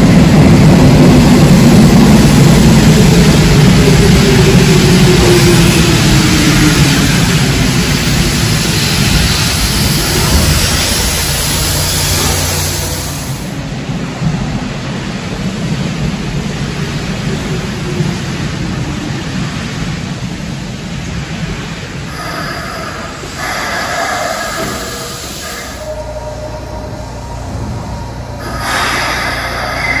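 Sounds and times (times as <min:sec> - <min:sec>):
high-pitched train whine: 0:00.0 - 0:14.0, 0:21.9 - 0:30.0
train slowing to a stop: 0:00.0 - 0:30.0
train wheels rumbling on rails: 0:00.0 - 0:30.0.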